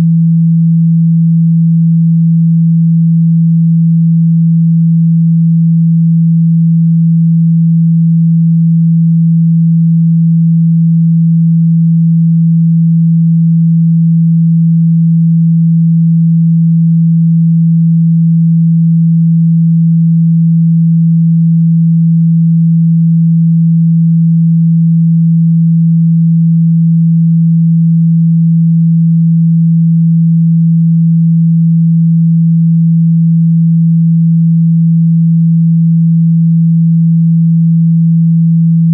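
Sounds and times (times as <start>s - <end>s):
steady sine tone: 0.0s - 38.9s.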